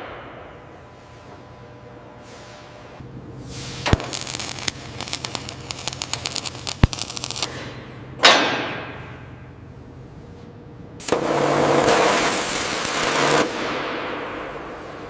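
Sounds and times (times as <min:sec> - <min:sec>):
hissing burst: 0:03.5 - 0:07.5
sharp metal clicks and cracks: 0:03.9 - 0:07.5
loud snaps: 0:03.9 - 0:07.6.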